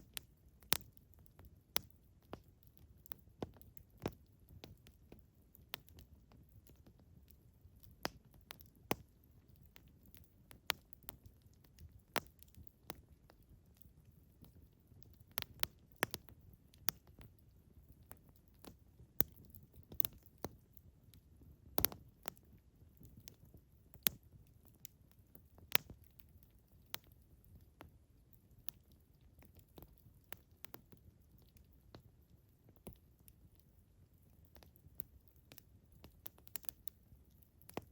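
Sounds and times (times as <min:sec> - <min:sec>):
campfire pops and snaps: 0:00.0 - 0:07.0, 0:07.8 - 0:13.4, 0:15.0 - 0:17.3, 0:18.0 - 0:20.6, 0:21.7 - 0:22.4, 0:23.0 - 0:27.2, 0:28.7 - 0:31.6, 0:32.7 - 0:33.0, 0:34.5 - 0:37.0, 0:37.6 - 0:37.9
low rumble of burning fire: 0:00.0 - 0:37.9.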